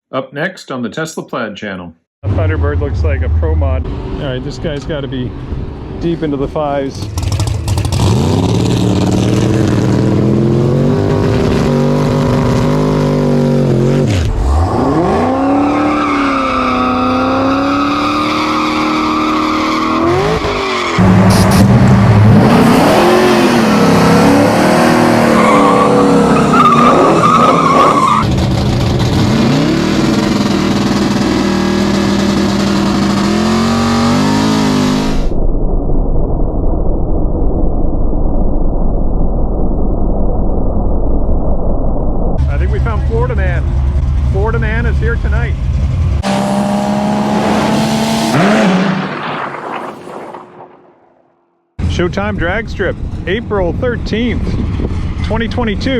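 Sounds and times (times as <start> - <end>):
race car engines revving: 2.2 - 35.3, 42.4 - 50.6.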